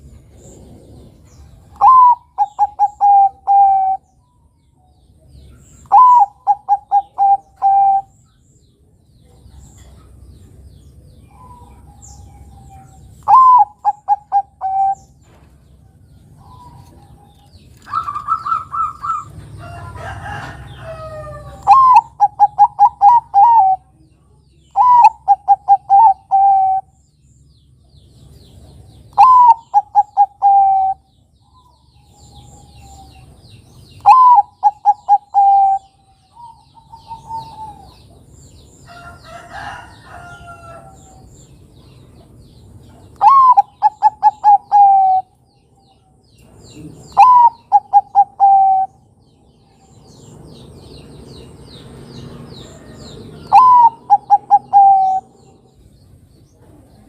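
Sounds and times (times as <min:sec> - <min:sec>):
dove cooing: 0:01.7 - 0:04.0, 0:05.9 - 0:08.1, 0:11.3 - 0:15.1, 0:16.4 - 0:19.5, 0:20.2 - 0:24.0, 0:24.8 - 0:26.9, 0:29.1 - 0:31.0, 0:34.0 - 0:38.0, 0:43.2 - 0:45.4, 0:46.7 - 0:49.0, 0:53.4 - 0:55.5
different bird call: 0:17.8 - 0:19.3, 0:24.8 - 0:27.0, 0:29.1 - 0:31.1, 0:43.2 - 0:45.4, 0:47.0 - 0:49.0, 0:53.4 - 0:55.5.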